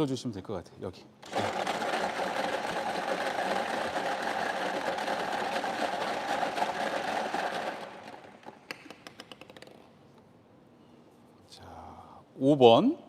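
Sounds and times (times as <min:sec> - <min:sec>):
prize-draw machine rattling: 0:01.2 - 0:08.4.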